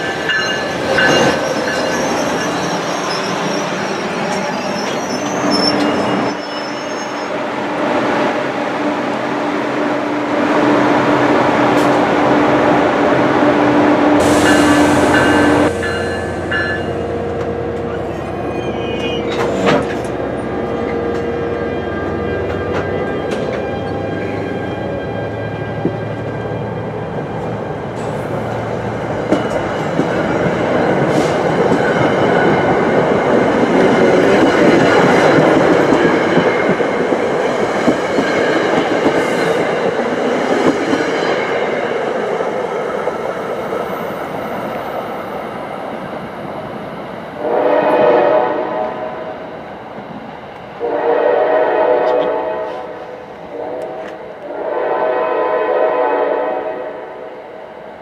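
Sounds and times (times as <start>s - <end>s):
train rushing past: 0.0s - 58.0s
train horn: 47.4s - 49.4s, 50.8s - 57.4s.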